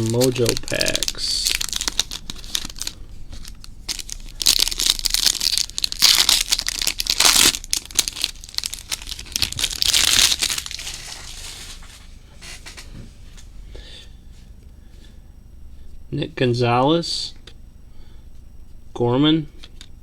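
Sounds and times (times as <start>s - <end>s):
foil packs tearing: 0.0s - 12.0s
wrappers crinkling: 0.0s - 12.8s.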